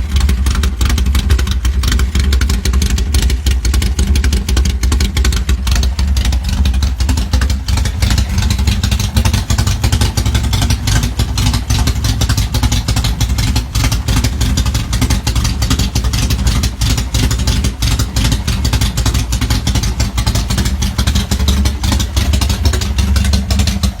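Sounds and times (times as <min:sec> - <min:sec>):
unmuffled car engine running: 0:00.0 - 0:24.0.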